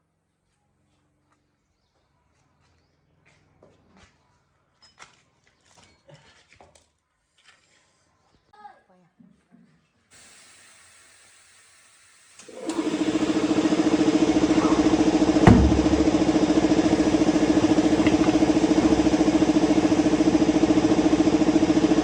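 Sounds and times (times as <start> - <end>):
car engine starting and idling: 12.4 - 22.0
sharp knock: 14.6 - 16.4.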